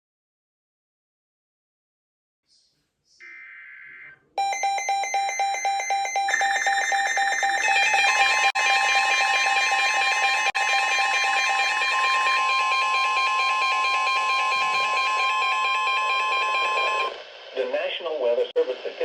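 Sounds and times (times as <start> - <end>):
pulsing electronic alarm: 4.4 - 17.2
steady electronic tone: 4.4 - 17.2.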